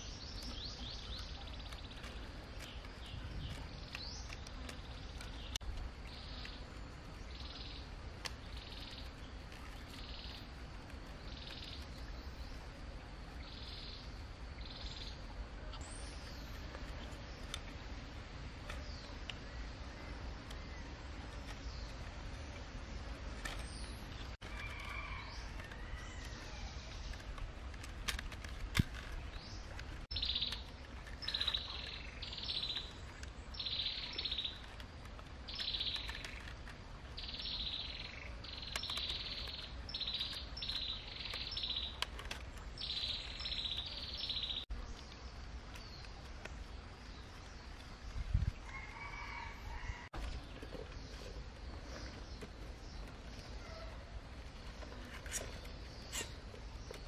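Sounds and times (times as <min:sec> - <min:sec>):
bamboo strips clicking: 0:00.3 - 0:07.2, 0:08.1 - 0:12.1, 0:21.2 - 0:37.2, 0:37.9 - 0:44.2
lower bird calls: 0:18.6 - 0:57.0.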